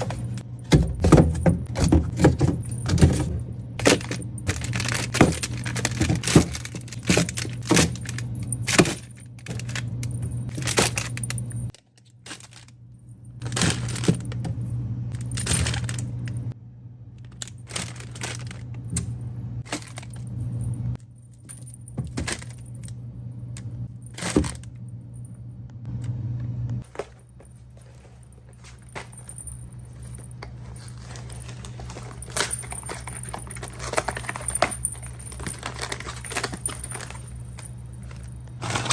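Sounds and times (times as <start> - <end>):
containers clinking and clattering: 0.0 - 12.7, 26.8 - 38.9
steady low hum: 0.0 - 38.9.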